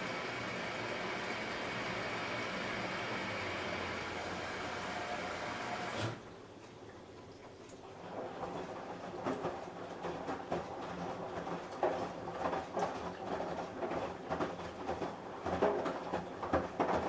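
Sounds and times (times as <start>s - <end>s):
washing machine running: 0.0s - 6.3s, 7.9s - 17.0s
laundry tumbling in drum: 8.0s - 17.0s.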